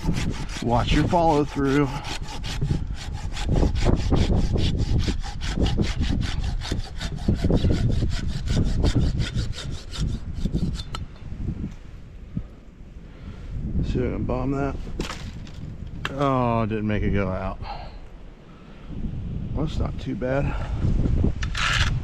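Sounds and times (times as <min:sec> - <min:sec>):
hand saw cutting branch: 0:00.0 - 0:11.0.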